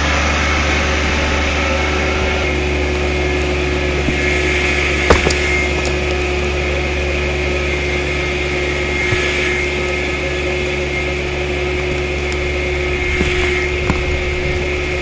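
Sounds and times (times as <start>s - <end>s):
machine humming: 0.0s - 15.0s
faint cracks: 4.4s - 7.2s.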